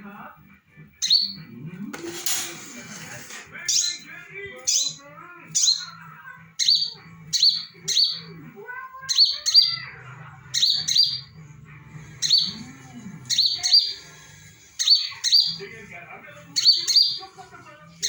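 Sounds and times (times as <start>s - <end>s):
bird chirping: 0.9s - 1.6s, 3.6s - 8.4s, 9.0s - 15.7s, 16.4s - 17.4s.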